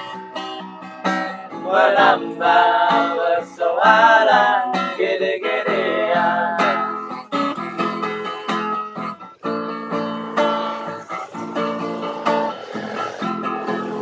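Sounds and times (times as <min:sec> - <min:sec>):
guitar strumming chords: 0:05.6 - 0:14.0.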